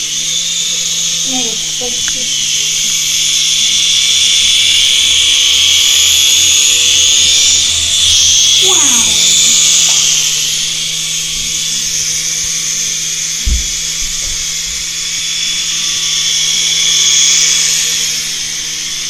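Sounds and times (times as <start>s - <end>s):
toy helicopter motor whining: 0.0s - 19.0s
low thump: 13.4s - 14.7s.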